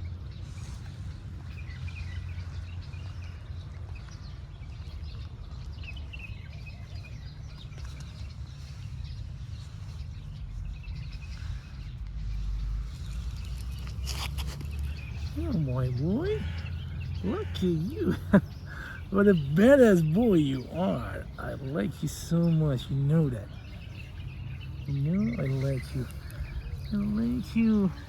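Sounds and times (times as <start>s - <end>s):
low outdoor rumble: 0.0s - 28.0s
small birds chirping: 0.0s - 28.0s.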